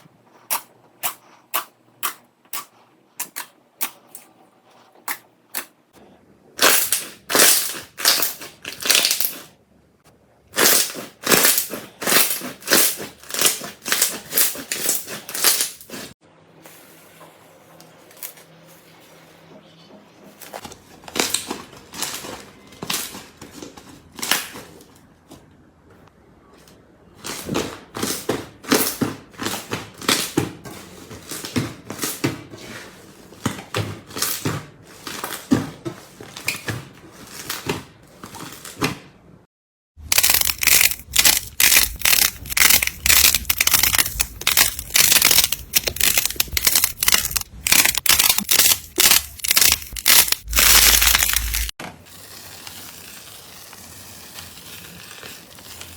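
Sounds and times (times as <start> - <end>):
slime crackling and popping: 6.6 - 9.5, 10.6 - 16.1, 40.0 - 55.9
slime crunching: 6.6 - 9.6, 10.6 - 16.2, 40.0 - 51.8.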